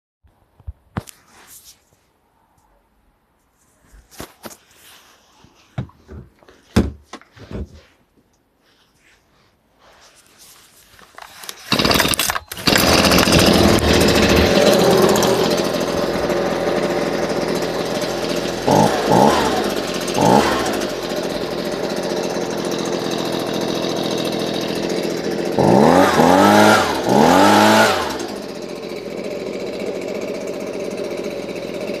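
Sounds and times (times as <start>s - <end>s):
leaf blower engine revving: 11.4s - 32.0s.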